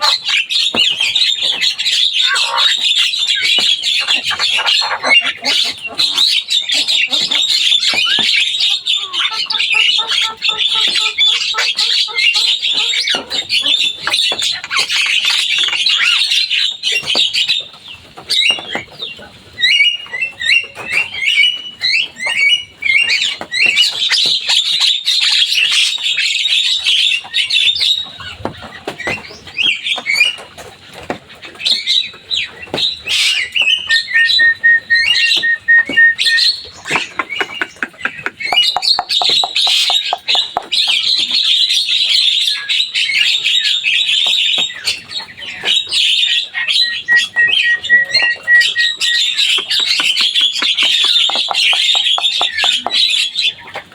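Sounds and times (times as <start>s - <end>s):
myna chattering and whistling: 0.0s - 16.4s, 33.3s - 41.9s, 45.8s - 53.8s.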